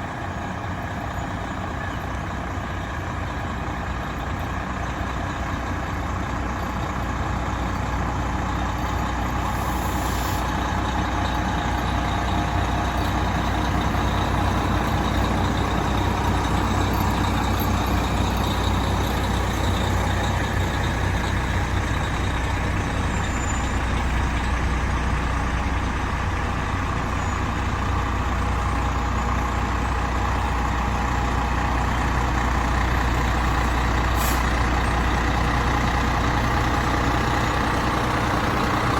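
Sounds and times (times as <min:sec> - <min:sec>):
fire truck diesel engine running: 0:00.0 - 0:38.9
brief high hiss: 0:09.5 - 0:10.5.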